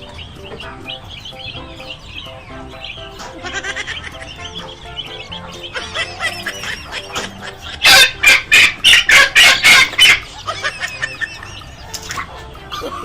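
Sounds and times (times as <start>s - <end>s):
chicken squawking: 0.0s - 13.0s.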